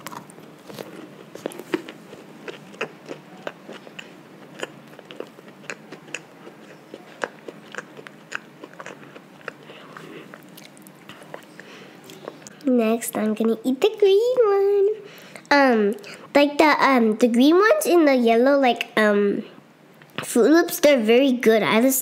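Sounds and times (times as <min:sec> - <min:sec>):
child chewing and crunching: 0:00.0 - 0:12.7.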